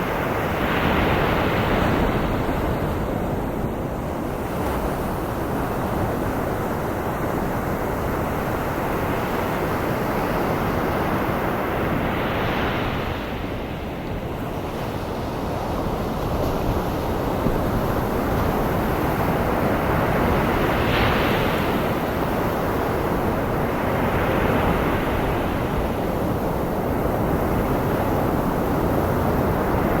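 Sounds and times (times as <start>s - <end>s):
ocean waves washing: 14.5s - 30.0s.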